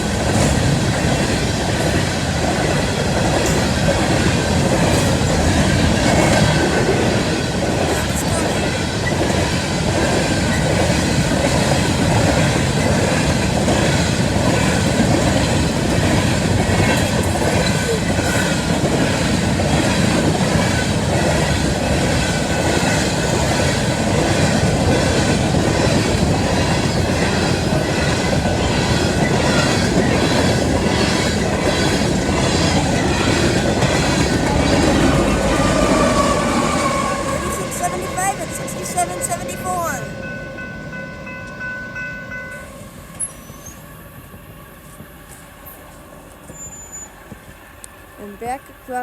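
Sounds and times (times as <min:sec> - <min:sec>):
wheels clacking over rail joints: 0:00.0 - 0:37.7
freight train rattling past: 0:00.0 - 0:49.0.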